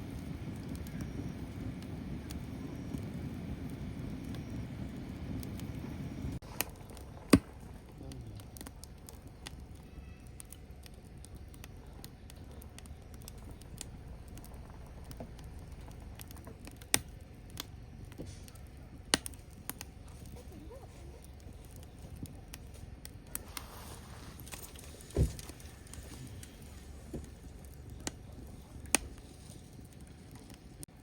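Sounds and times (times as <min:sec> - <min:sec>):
firewood crackling and popping: 0:00.0 - 0:31.0.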